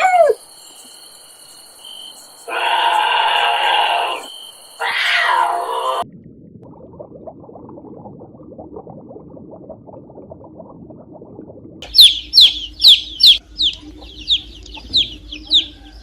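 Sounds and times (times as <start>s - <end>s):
loud animal calls: 2.5s - 6.0s
rough low rapid animal calls: 2.5s - 6.0s.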